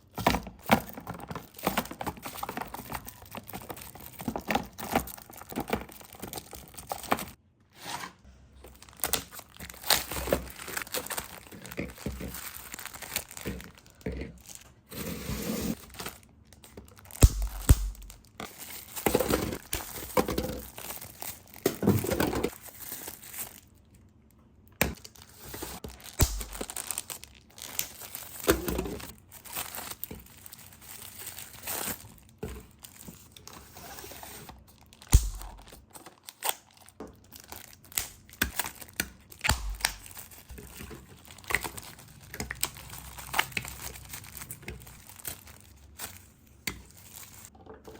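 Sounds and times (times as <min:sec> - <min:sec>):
plastic bags crinkling: 0:00.2 - 0:07.4, 0:08.6 - 0:14.7, 0:15.7 - 0:24.2, 0:25.0 - 0:33.5, 0:34.5 - 0:47.6
heavy thumps: 0:17.2 - 0:18.2.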